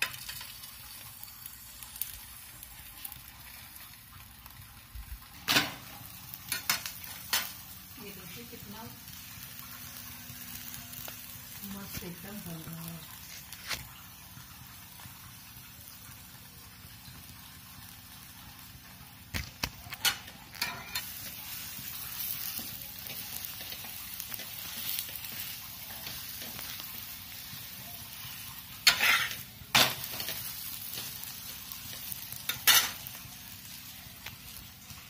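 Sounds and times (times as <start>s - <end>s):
flatbread sizzling in oil: 0.0s - 35.0s
metal spatula scraping griddle: 19.9s - 26.8s, 28.2s - 31.2s, 31.9s - 33.2s.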